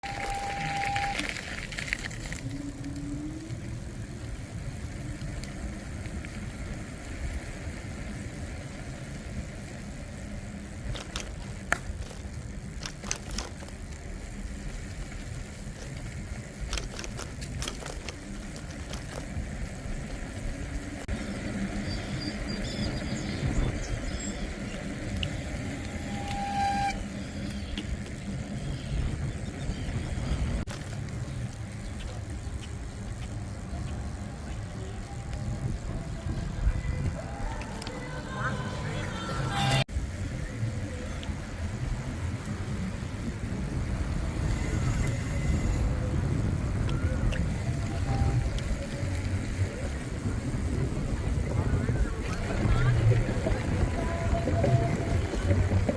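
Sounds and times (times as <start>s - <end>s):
short pitched tone: 0.0s - 1.3s, 25.8s - 27.4s
bicycle clicks and rattles: 0.0s - 22.4s, 23.5s - 38.4s
wind and road rumble: 0.0s - 55.9s.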